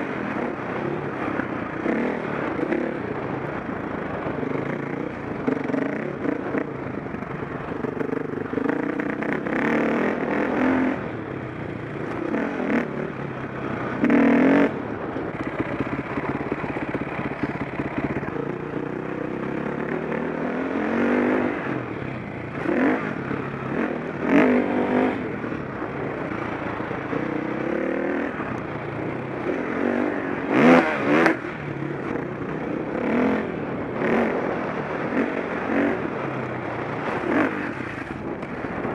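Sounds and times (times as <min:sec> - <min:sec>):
motocross engine revving: 0:08.4 - 0:11.1.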